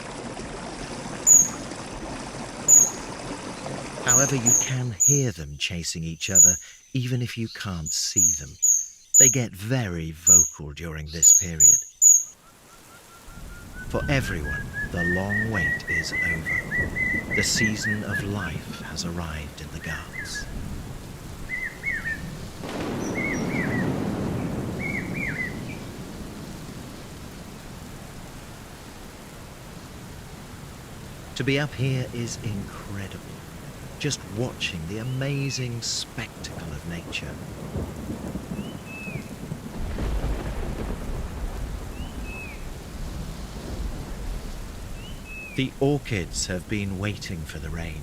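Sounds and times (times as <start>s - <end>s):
steady rain: 0.0s - 6.9s, 12.3s - 48.0s
bird calling: 1.2s - 1.7s, 2.6s - 5.4s, 6.2s - 9.6s, 10.2s - 20.6s, 21.4s - 26.0s
thunder rumbling: 13.4s - 48.0s.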